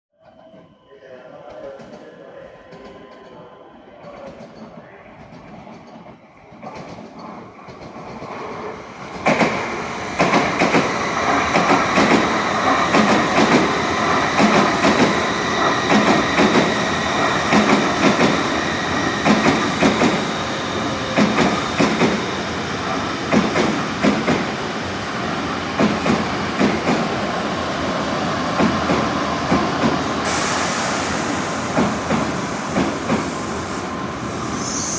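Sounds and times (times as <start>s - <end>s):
bullet train passing: 0.2s - 34.9s
train wheels clattering: 9.1s - 24.6s, 28.5s - 33.4s
high hiss: 30.0s - 34.9s.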